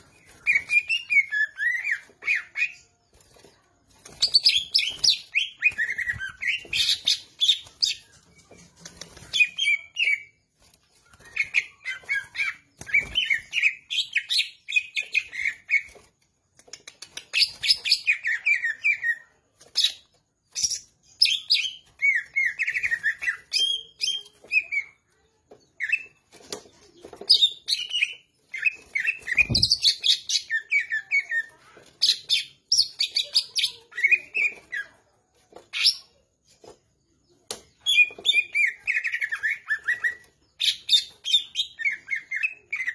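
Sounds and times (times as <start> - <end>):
bird singing chirps and whistles: 0.0 - 2.8, 4.1 - 8.6, 20.6 - 25.0, 27.3 - 31.4, 37.8 - 42.9.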